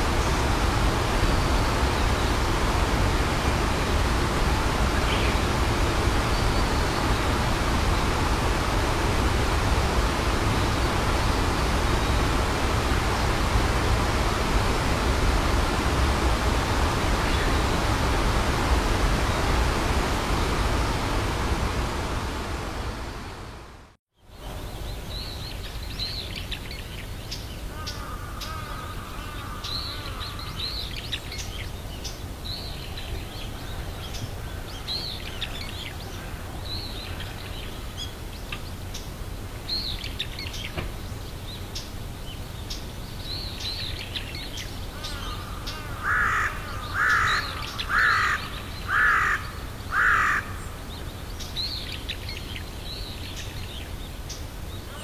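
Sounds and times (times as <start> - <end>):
loud bird calls: 44.9 - 52.6.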